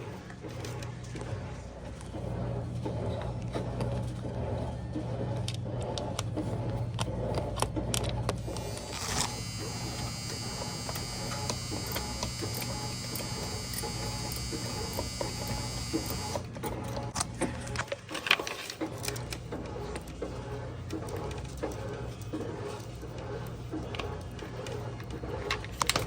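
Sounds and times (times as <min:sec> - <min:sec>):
small electric motor whining: 0:08.4 - 0:16.5.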